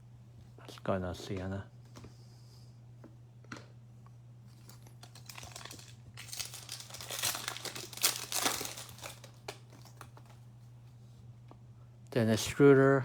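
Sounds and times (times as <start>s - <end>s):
low electrical hum: 0.0s - 13.0s
plastic wrapper tearing and crinkling: 4.6s - 10.4s.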